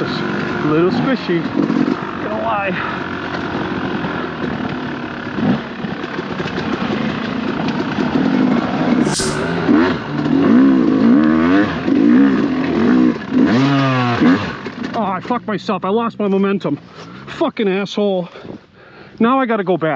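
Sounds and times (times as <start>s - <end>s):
dirt bike engine revving: 3.2s - 15.0s
sharp click: 9.0s - 9.8s.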